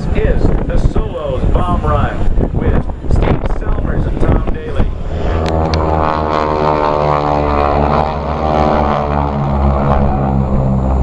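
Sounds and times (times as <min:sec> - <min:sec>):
propeller planes droning overhead: 0:00.0 - 0:11.0.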